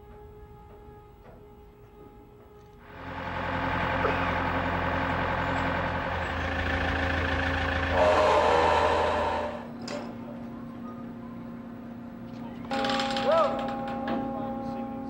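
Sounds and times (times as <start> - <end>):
engine running with low hum: 2.8 - 12.7.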